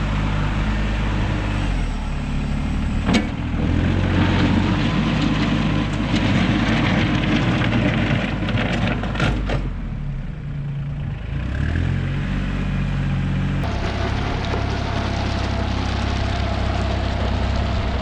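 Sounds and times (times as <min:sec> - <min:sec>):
machine engine running: 0:13.6 - 0:18.0.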